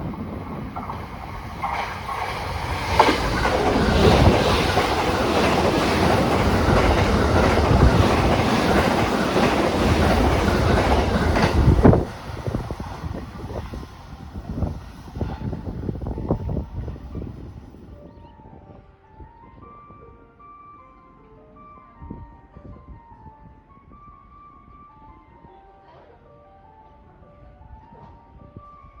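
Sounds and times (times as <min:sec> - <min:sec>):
train wheels clacking: 0:00.0 - 0:14.4.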